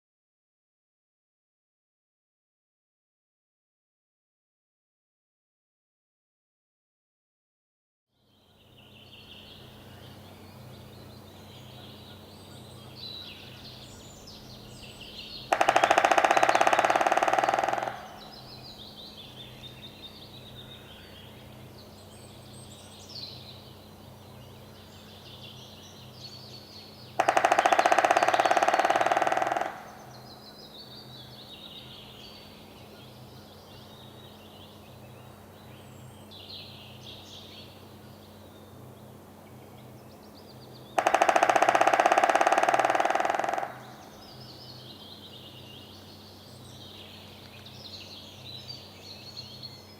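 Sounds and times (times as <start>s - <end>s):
faint birds singing: 8.1s - 49.9s
woodpecker drumming: 14.6s - 19.0s, 27.2s - 30.4s, 40.9s - 44.4s.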